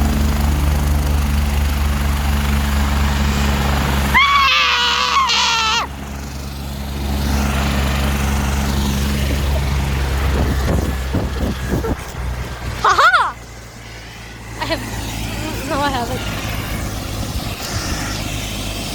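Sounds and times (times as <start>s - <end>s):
helicopter rotor and turbine: 0.0s - 18.9s
high wavering cry: 4.1s - 5.9s, 12.8s - 13.4s.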